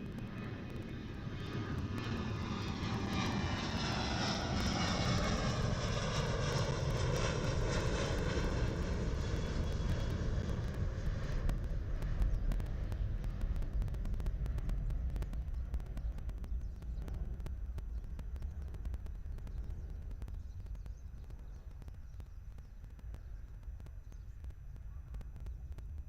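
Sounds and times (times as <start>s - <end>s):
airliner engines passing by: 0.0s - 26.0s.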